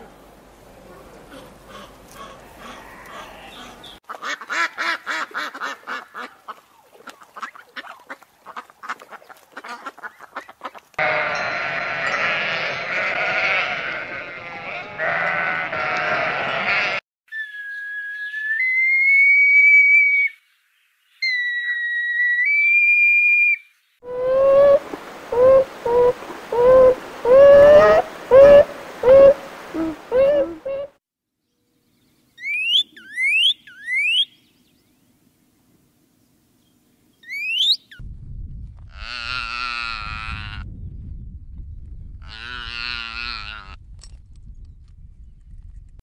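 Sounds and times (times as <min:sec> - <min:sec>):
sheep bleating: 0:02.4 - 0:03.8, 0:11.0 - 0:17.0.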